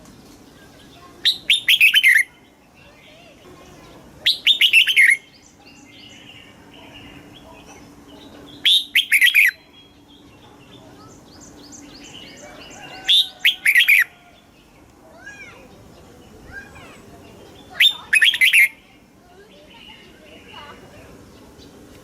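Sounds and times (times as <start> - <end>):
bird singing whistled phrases: 1.2 - 2.4, 4.2 - 6.4, 8.5 - 10.2, 11.4 - 14.1, 17.6 - 18.8
quick high bird chirps: 1.3 - 2.3, 8.6 - 9.6, 17.7 - 18.8.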